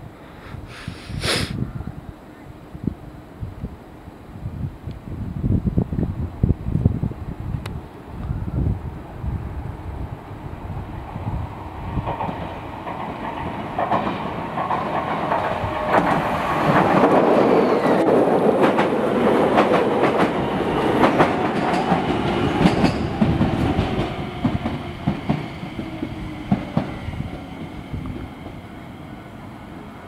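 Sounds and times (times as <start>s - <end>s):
electric train passing: 6.4s - 30.0s
wheels clacking over rail joints: 12.0s - 28.6s.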